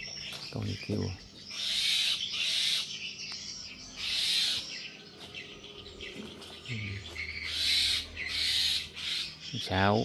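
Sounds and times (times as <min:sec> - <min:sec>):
bird's harsh hissing calls: 0:00.6 - 0:03.2, 0:04.0 - 0:04.8, 0:06.0 - 0:09.9.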